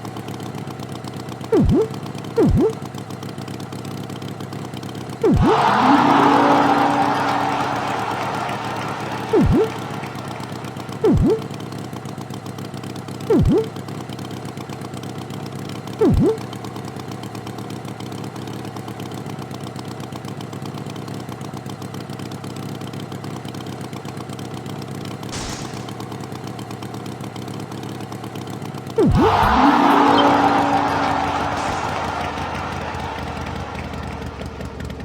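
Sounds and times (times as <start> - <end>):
swooping sounds: 1.5 - 2.8, 5.2 - 11.6, 13.3 - 13.7, 16.0 - 16.4, 29.0 - 34.2
tractor engine idling: 25.3 - 26.2, 29.0 - 35.0.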